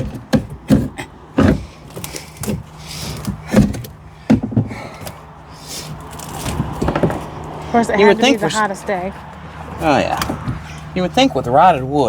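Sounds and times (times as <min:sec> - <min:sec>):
tools knocking on wood: 0:00.0 - 0:05.2, 0:05.9 - 0:07.6, 0:10.1 - 0:11.3.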